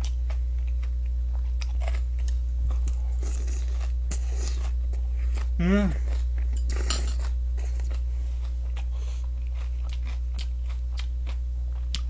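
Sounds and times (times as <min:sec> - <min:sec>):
person chewing food: 0:00.0 - 0:12.0
steady low hum: 0:00.0 - 0:12.0.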